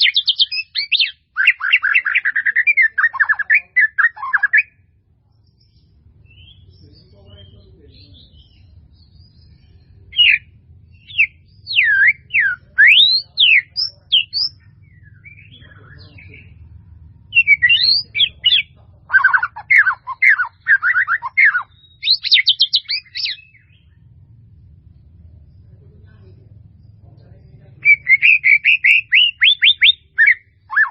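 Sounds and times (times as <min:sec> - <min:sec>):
bird singing whistled phrases: 0:00.0 - 0:04.8, 0:10.1 - 0:16.4, 0:17.3 - 0:23.8, 0:27.8 - 0:30.9
steady low hum: 0:00.0 - 0:30.9.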